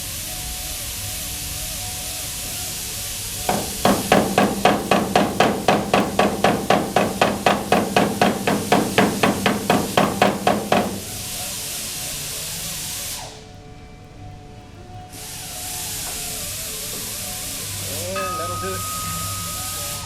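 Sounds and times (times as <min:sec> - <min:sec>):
hammer striking sheet metal: 0:03.5 - 0:11.2.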